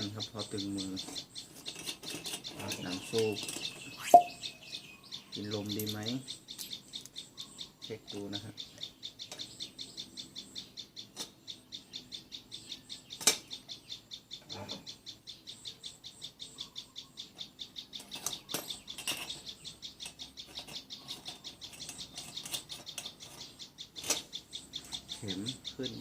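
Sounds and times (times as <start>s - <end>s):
rapid high-pitched chirping: 0.0s - 26.0s.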